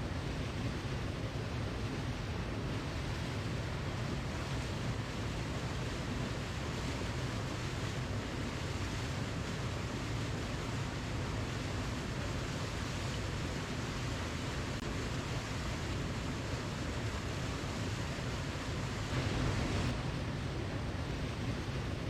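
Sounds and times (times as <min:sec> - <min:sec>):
falling water rushing: 0:09.3 - 0:22.0.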